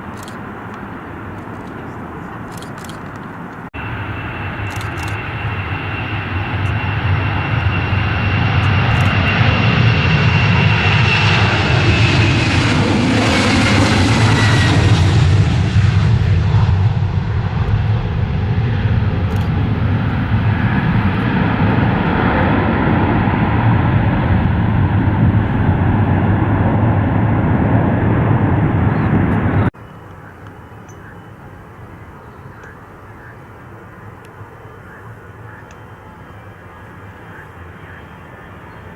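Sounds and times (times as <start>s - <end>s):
high jet whine: 0.0s - 38.9s
jet airliner passing: 0.0s - 38.9s.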